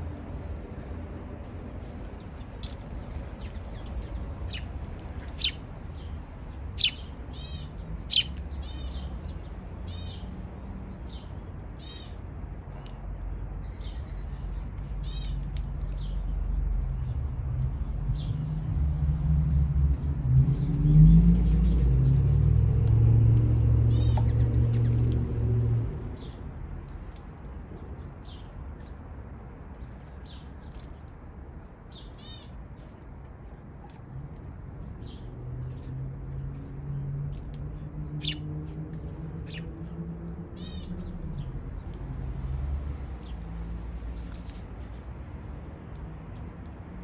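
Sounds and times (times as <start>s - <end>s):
small songbirds chirping: 0.0s - 47.0s
low rumble: 16.4s - 26.2s.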